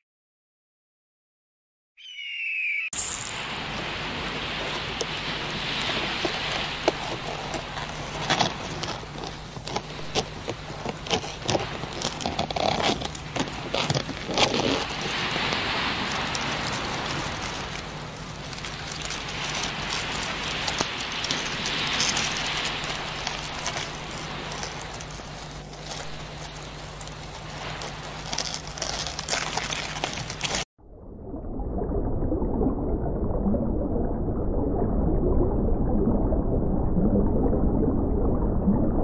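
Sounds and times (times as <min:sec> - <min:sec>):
small waves washing: 0:03.1 - 0:30.7.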